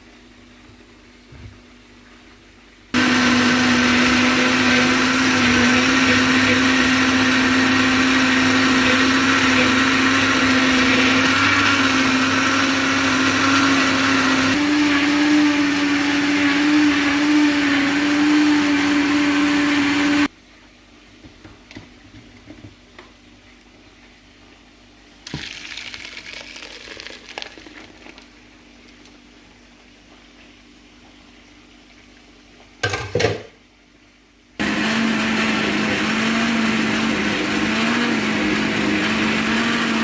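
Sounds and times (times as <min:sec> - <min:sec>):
blender motor running: 0:03.0 - 0:20.3, 0:34.6 - 0:40.0.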